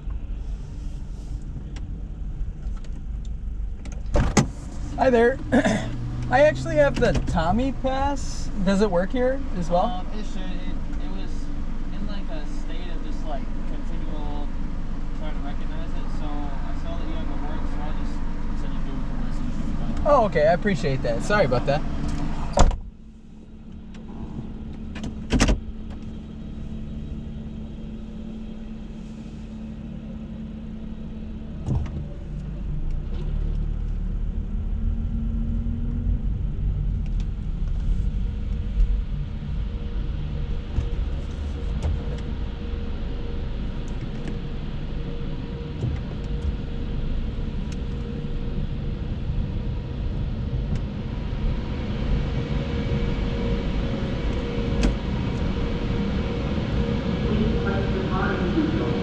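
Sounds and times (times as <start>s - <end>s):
car wash machinery rumble: 0.0s - 59.0s.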